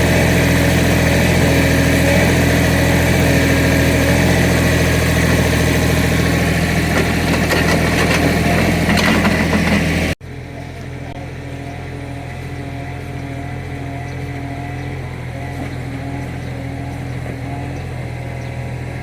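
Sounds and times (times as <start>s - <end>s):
excavator diesel engine running: 0.0s - 19.0s
quieter engine: 0.0s - 19.0s
short metal clanks: 6.9s - 10.0s.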